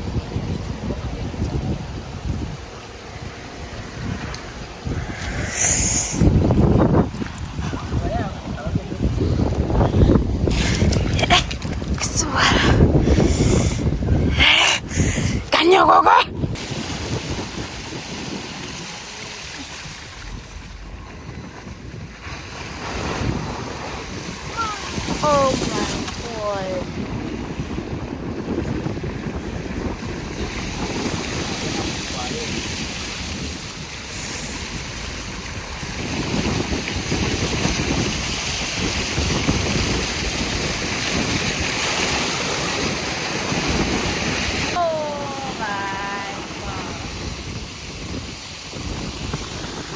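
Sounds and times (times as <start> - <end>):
wind buffeting microphone: 0.0 - 49.9
heavy rain: 22.7 - 26.8, 29.7 - 49.9.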